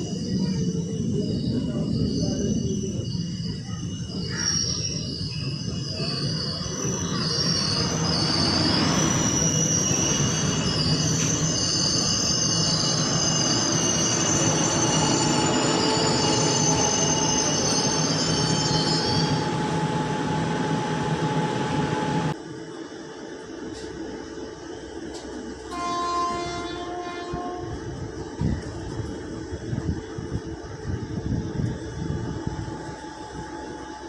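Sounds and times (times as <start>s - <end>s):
train rumbling on track: 0.0s - 34.0s
wheel squeal: 1.6s - 19.7s.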